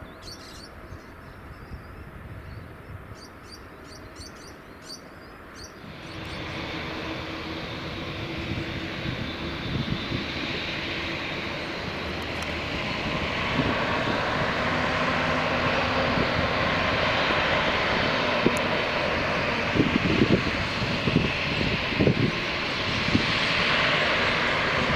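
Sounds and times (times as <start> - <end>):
jet engines roaring: 5.4 - 24.9.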